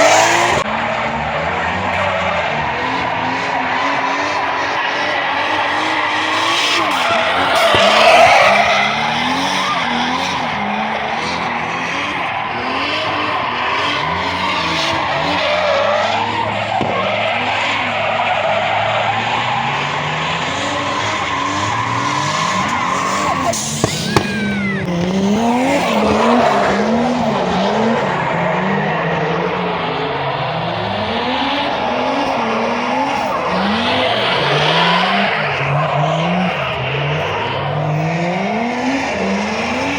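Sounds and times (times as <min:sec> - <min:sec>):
car engines revving: 0:00.0 - 0:39.9
tyres screeching: 0:01.9 - 0:28.0.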